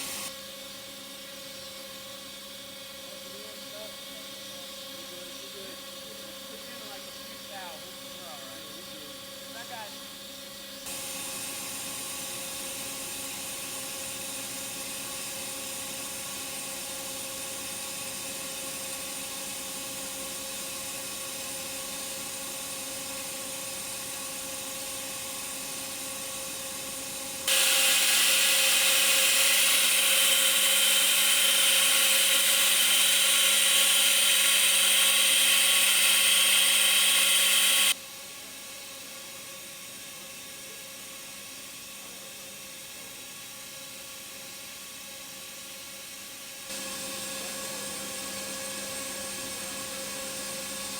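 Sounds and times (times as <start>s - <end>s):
loud high hiss and whine: 0.0s - 0.3s, 26.5s - 38.0s, 46.7s - 50.9s
factory machine hum: 26.4s - 38.0s.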